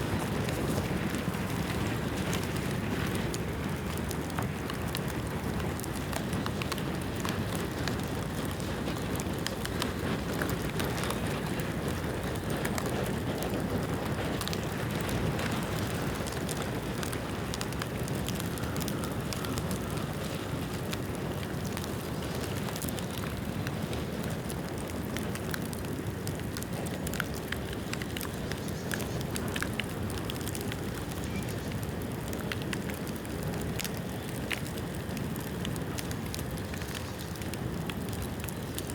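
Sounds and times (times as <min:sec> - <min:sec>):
bonfire crackling and popping: 0:00.0 - 0:38.9.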